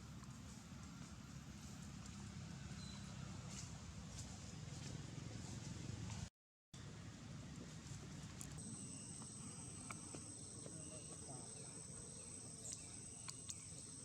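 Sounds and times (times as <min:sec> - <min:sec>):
high-pitched insect call: 0:08.6 - 0:14.0.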